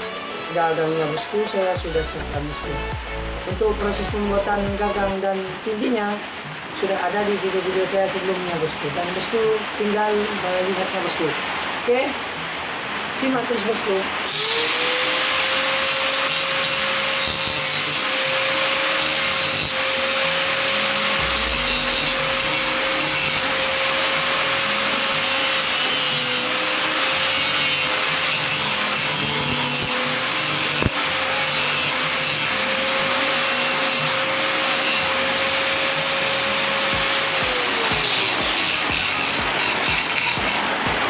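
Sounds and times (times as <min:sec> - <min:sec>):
power tool motor grinding: 0:14.3 - 0:40.9.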